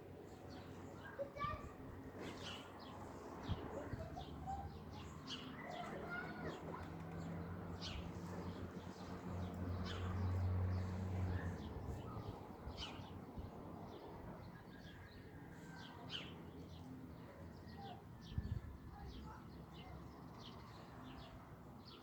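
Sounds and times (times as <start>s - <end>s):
wild birds chirping: 2.4s - 18.4s.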